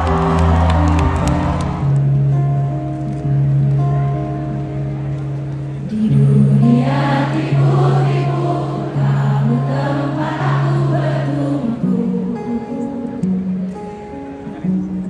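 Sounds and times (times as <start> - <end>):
person singing: 5.9 - 13.4.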